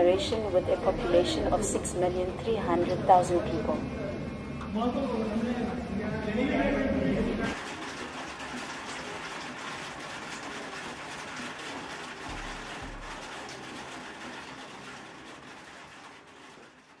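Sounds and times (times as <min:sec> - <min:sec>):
heavy rain on a flooded street: 0:07.5 - 0:17.0.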